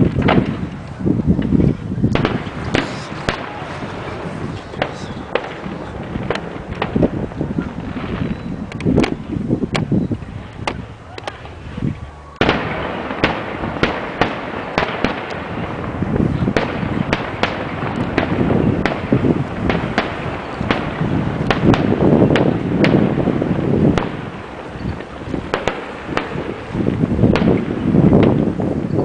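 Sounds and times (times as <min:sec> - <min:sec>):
fireworks bangs and crackling: 0:00.0 - 0:29.0
rushing hiss: 0:02.5 - 0:06.2.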